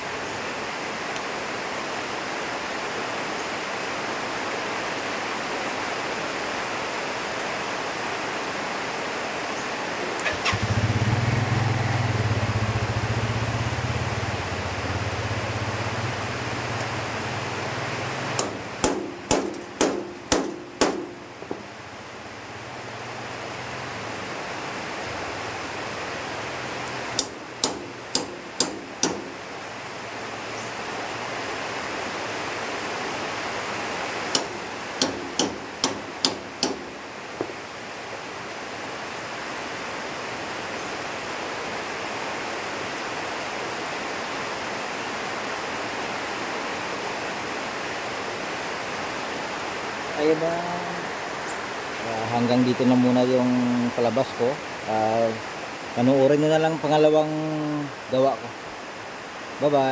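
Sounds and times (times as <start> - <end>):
heavy rain: 0.0 - 59.9
hammer blows on metal: 18.4 - 21.6, 27.2 - 29.4, 34.3 - 37.6.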